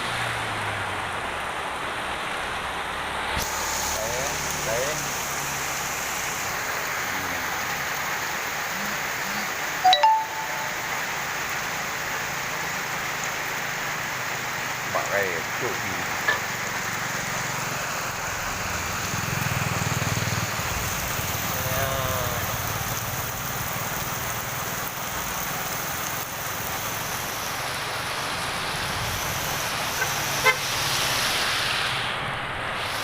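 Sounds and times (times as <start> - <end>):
heavy rain: 0.0 - 33.0
brief pitched tone: 9.8 - 11.2.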